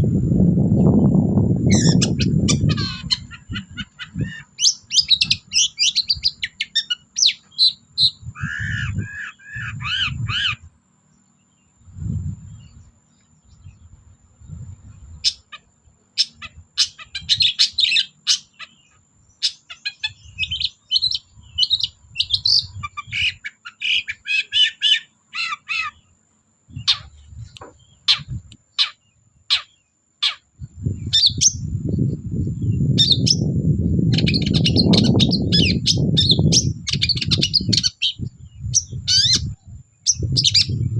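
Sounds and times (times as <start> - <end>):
low rumbling noise: 0.0 - 4.3, 11.6 - 15.2
bird singing scratchy chatter: 0.8 - 40.9.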